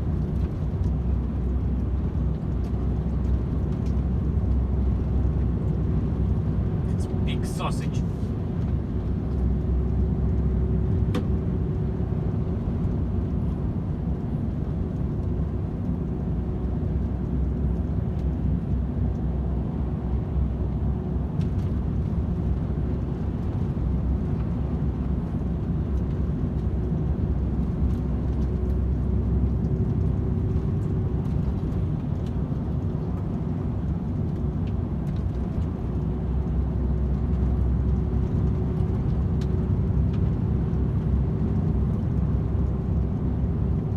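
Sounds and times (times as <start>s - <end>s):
constant hum: 0.0s - 43.9s
truck diesel engine drone: 4.2s - 14.9s.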